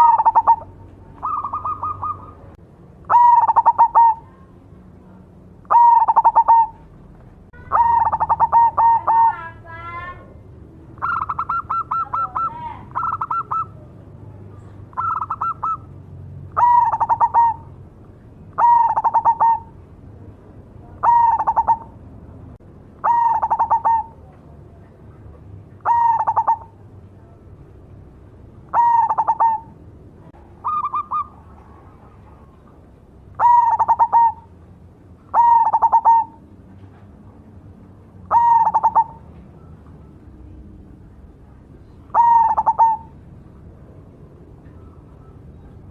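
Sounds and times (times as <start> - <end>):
dove cooing: 0.0 - 4.4, 5.6 - 6.9, 7.6 - 9.6, 11.0 - 14.0, 14.9 - 15.9, 16.5 - 17.8, 18.5 - 19.8, 20.8 - 22.0, 23.0 - 24.3, 25.8 - 26.9, 28.7 - 29.8, 30.5 - 34.6, 35.2 - 36.6, 38.3 - 40.6, 41.8 - 43.2.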